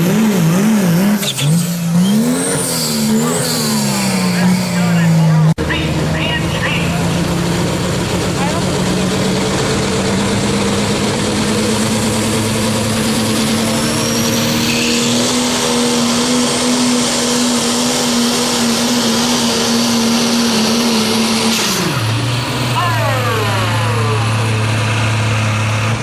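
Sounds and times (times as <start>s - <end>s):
diesel engine at full throttle: 0.0s - 26.0s
turbo whistle: 13.7s - 15.2s.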